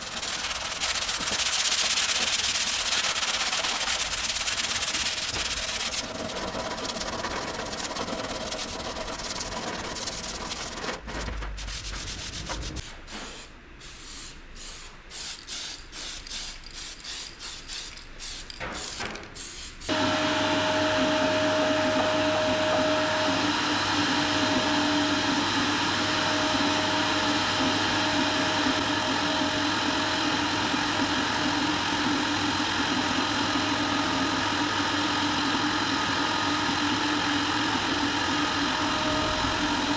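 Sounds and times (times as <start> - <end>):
hand sanding rasping strokes: 0.0 - 12.8
loud steady machine hum: 19.9 - 39.9.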